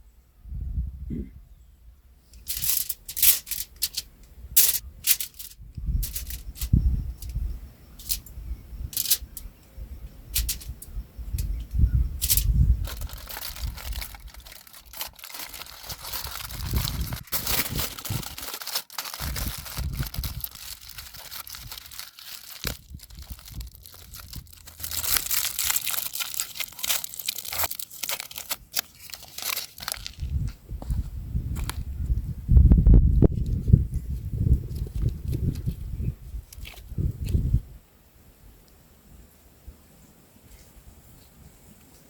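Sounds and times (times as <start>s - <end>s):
packaging crinkling and rustling: 2.4s - 7.4s, 8.0s - 8.2s, 8.9s - 9.4s, 10.3s - 11.5s, 12.2s - 31.0s, 36.5s - 36.9s.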